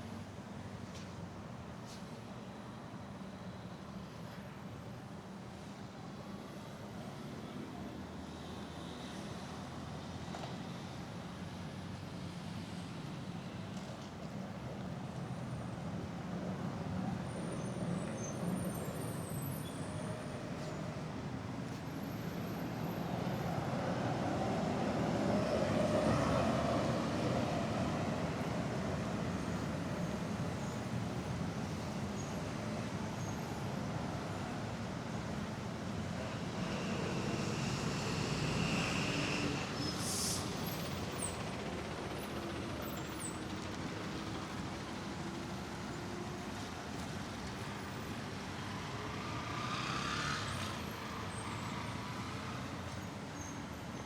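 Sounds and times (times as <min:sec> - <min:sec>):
traffic rumbling by: 0:35.0 - 0:54.0.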